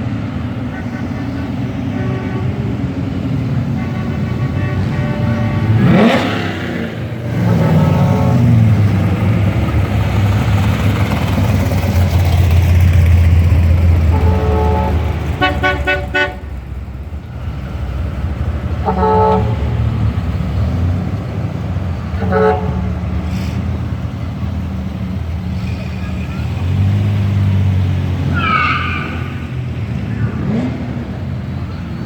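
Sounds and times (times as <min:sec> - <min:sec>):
car engines rumbling: 0:00.0 - 0:32.0
car horns tooting: 0:00.5 - 0:09.0, 0:14.0 - 0:16.6, 0:18.7 - 0:20.0, 0:22.1 - 0:23.2.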